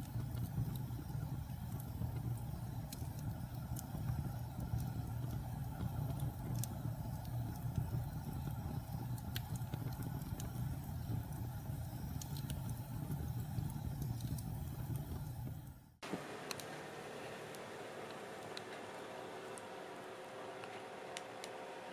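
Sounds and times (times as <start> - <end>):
fire crackling and popping: 0.0 - 16.7
wood fire roaring: 0.0 - 21.9.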